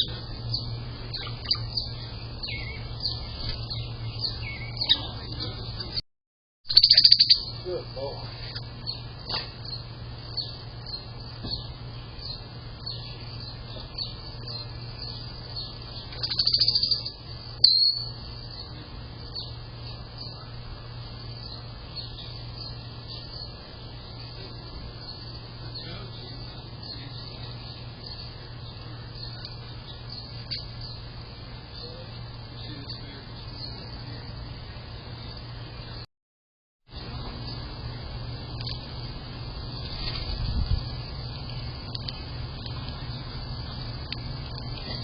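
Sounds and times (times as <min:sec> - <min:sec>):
low hum: 0:00.0 - 0:06.0, 0:36.9 - 0:45.0
songbirds chirping: 0:00.0 - 0:06.0, 0:06.7 - 0:36.0, 0:36.9 - 0:45.0.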